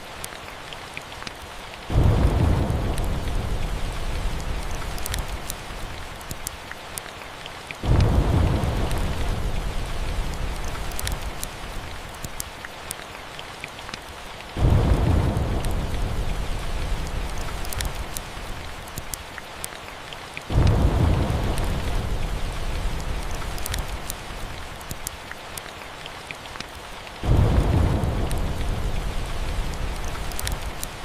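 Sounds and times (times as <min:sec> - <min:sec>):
steady rain: 0:00.0 - 0:31.0
rolling thunder: 0:01.9 - 0:05.8, 0:07.8 - 0:11.4, 0:14.6 - 0:18.2, 0:20.5 - 0:24.4, 0:27.2 - 0:30.8.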